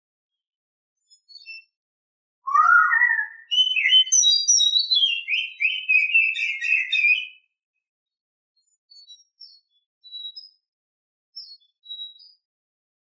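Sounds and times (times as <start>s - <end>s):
bird singing whistles: 2.5s - 7.5s.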